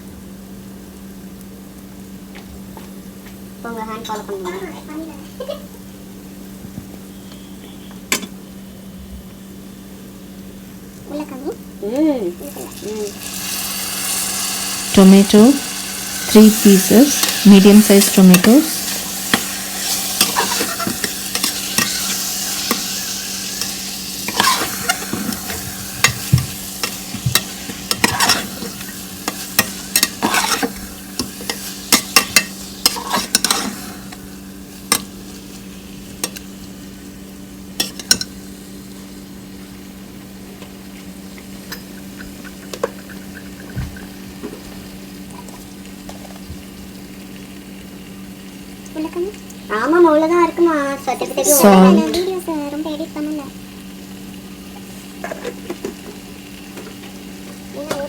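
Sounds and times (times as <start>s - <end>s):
food sizzling in hot oil: 9.4s - 58.0s
spoon scraping metal pan: 16.3s - 22.9s, 24.3s - 26.2s, 26.8s - 33.8s.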